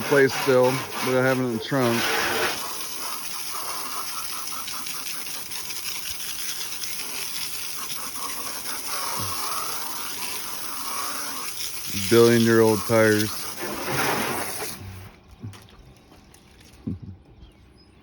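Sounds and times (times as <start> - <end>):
water spraying on car: 0.0 - 15.2.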